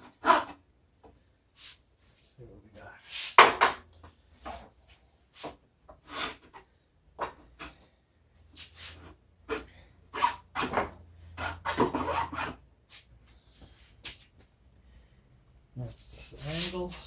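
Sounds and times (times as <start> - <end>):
metal file rasping on metal: 11.4 - 12.6.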